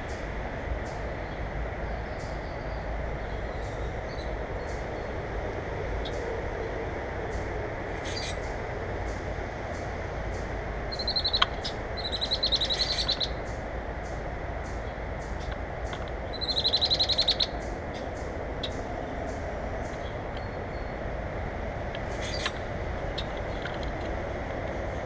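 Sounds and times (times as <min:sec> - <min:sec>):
steady background hiss: 0:00.0 - 0:25.0
bird chattering and trilling: 0:07.3 - 0:08.5, 0:09.7 - 0:21.0, 0:22.1 - 0:22.7.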